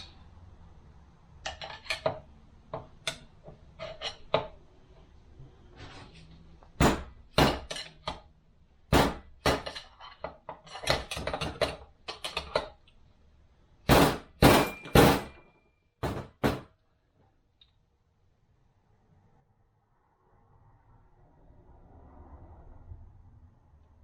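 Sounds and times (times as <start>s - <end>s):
hammer striking metal: 6.8s - 8.2s, 8.9s - 9.8s, 13.9s - 16.7s.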